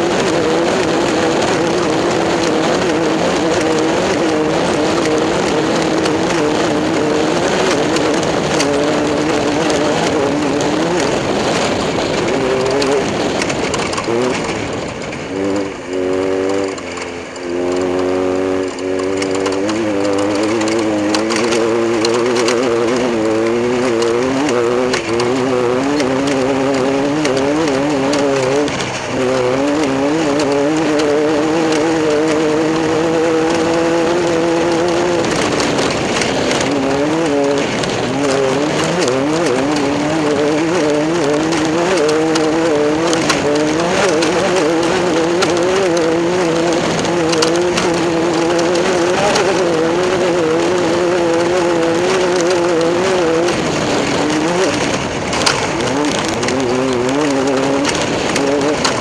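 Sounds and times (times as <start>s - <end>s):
race car engine running: 0.0s - 59.0s.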